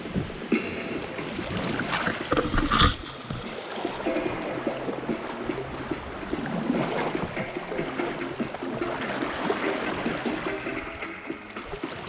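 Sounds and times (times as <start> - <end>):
river water splashing and gurgling: 0.0 - 12.0.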